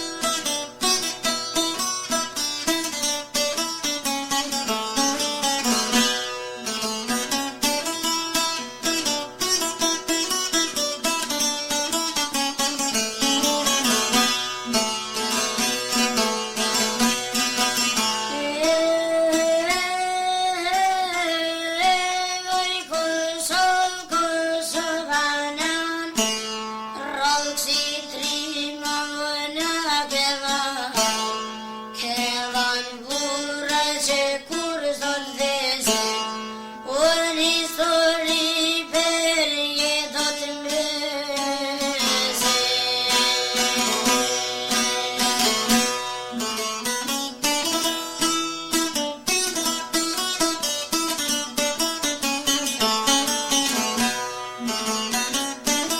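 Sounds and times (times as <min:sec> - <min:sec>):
plucked string instrument: 0:00.0 - 0:55.9
person singing: 0:18.2 - 0:31.4, 0:32.0 - 0:46.5.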